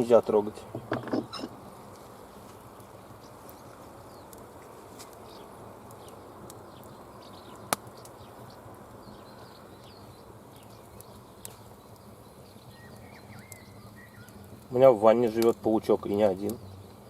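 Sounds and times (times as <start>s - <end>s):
campfire wood crackling: 0.0s - 17.0s
sharp pop from fire: 7.6s - 8.1s.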